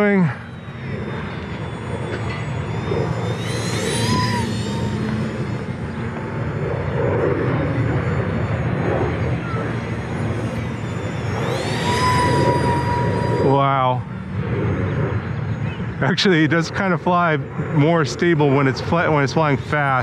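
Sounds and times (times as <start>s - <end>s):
rushing noise: 0.0s - 15.7s
rc plane propeller whine: 0.0s - 20.0s.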